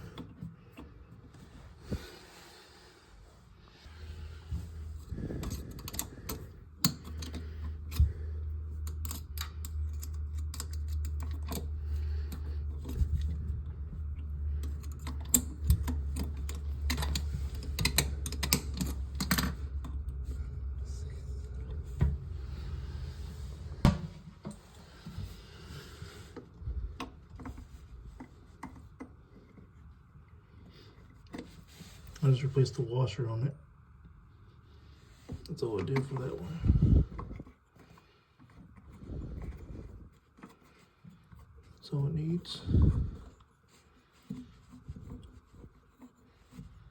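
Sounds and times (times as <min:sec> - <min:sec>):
low steady rumble: 0:00.0 - 0:46.9.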